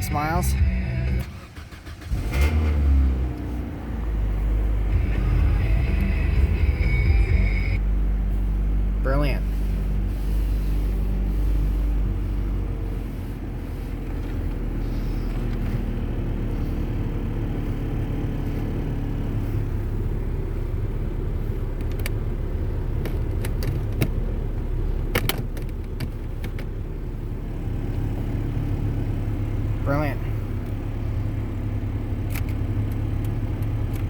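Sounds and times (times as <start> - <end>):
car engine idling: 0.0 - 34.0
sharp clicks: 32.2 - 34.0.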